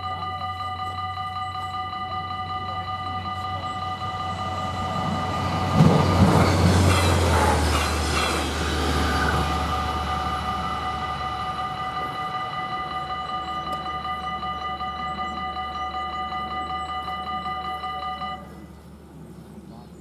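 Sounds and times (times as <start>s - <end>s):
crossing warning bells ringing: 0.0s - 19.2s
train wheels knocking over rail joints: 3.6s - 15.3s.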